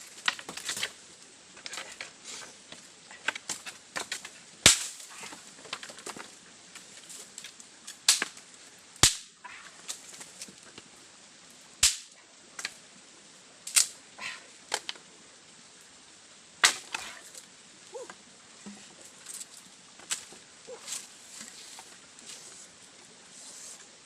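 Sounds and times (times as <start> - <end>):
sharp snaps: 9.0 - 9.3, 11.8 - 12.8, 13.7 - 14.0.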